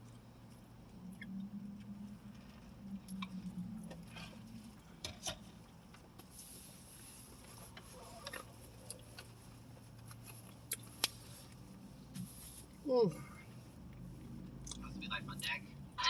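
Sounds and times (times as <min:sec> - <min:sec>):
low steady hum: 0:00.0 - 0:16.0
person chewing with mouth clicks: 0:10.1 - 0:11.6.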